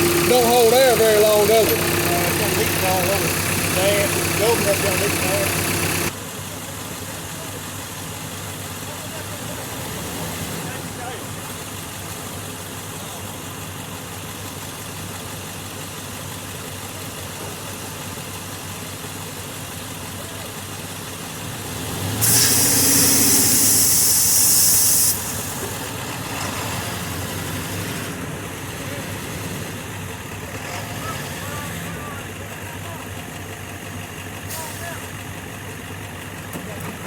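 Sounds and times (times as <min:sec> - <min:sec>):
truck engine idling: 0:00.0 - 0:37.0
loud hiss: 0:22.2 - 0:25.9.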